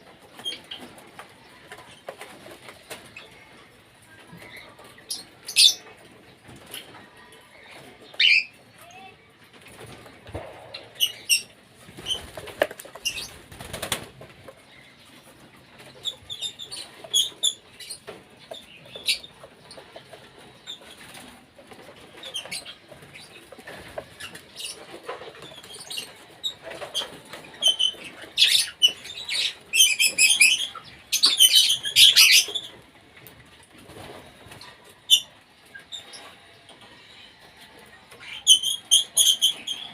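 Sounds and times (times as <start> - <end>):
wings flapping: 9.7 - 14.6
cockatiels chirping: 27.6 - 32.8.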